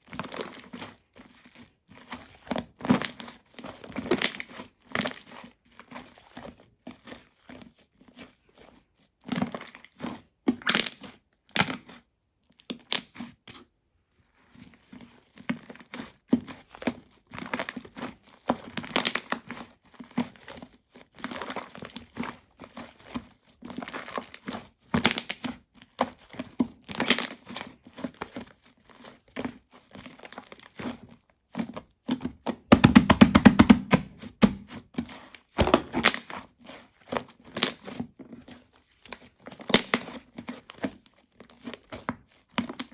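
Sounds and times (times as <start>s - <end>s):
slime squished by hand: 35.6s - 36.4s.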